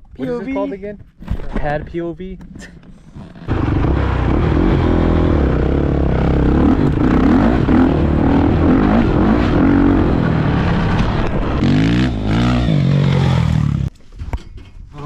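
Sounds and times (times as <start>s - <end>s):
dirt bike engine revving: 3.3s - 13.9s.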